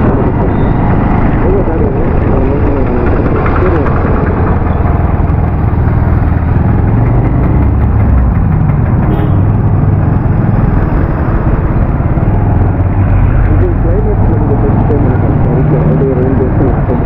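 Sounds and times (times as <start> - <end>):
motorcycle engine running: 0.0 - 17.0
road noise: 0.0 - 17.0.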